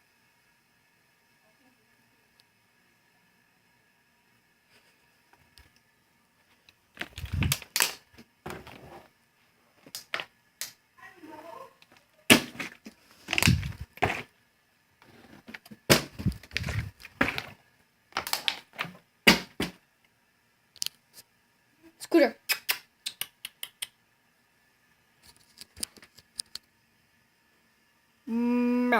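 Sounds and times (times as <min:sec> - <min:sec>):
plastic bottles knocking and clattering: 0:12.3 - 0:14.3, 0:15.4 - 0:17.6, 0:18.2 - 0:19.8.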